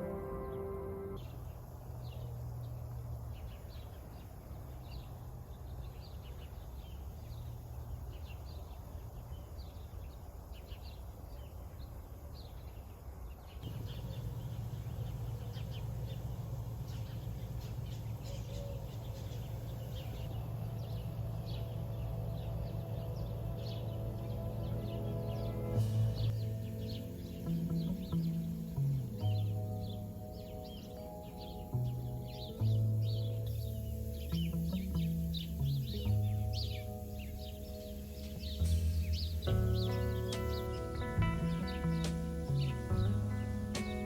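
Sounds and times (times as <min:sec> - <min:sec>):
small birds chirping: 0:00.0 - 0:44.0
low steady hum: 0:13.6 - 0:44.0.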